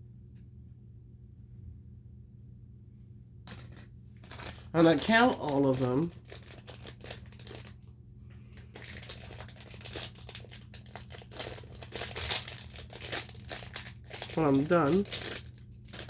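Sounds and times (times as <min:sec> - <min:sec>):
packaging crinkling and rustling: 0:04.2 - 0:16.0.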